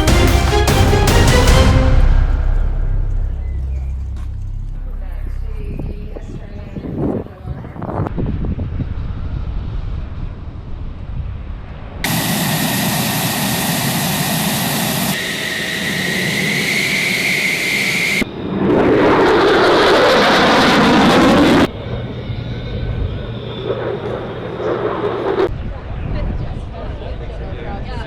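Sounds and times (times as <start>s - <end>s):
jet engine roar: 12.0s - 25.5s.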